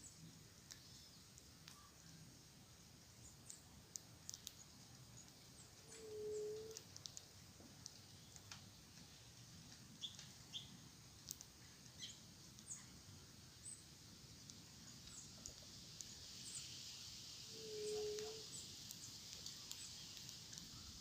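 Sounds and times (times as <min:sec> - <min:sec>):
steady high hiss: 0:00.0 - 0:21.0
birds chirping: 0:04.2 - 0:06.8, 0:17.5 - 0:21.0.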